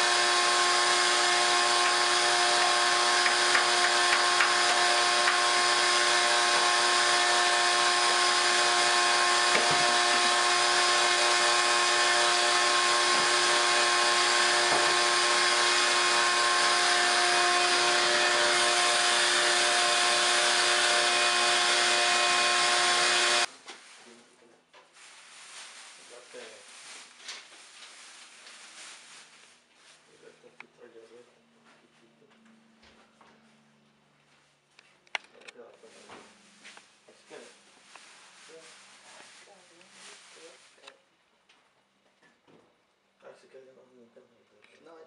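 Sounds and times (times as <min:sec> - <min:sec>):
electric power tool motor whining: 0:00.0 - 0:23.5.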